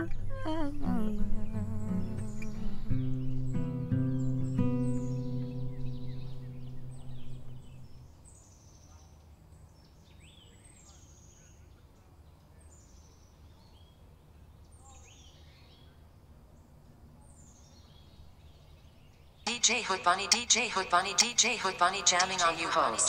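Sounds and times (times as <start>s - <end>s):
low outdoor rumble: 0.0s - 2.9s.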